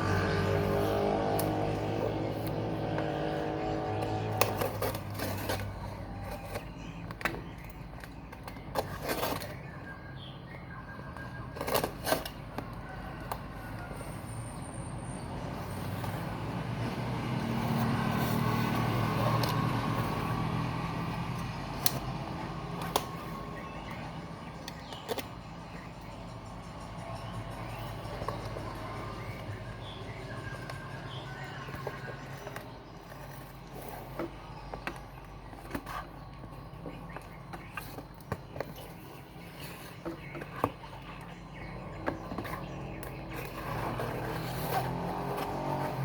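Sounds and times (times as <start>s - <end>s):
low engine-like hum: 0.0s - 9.0s.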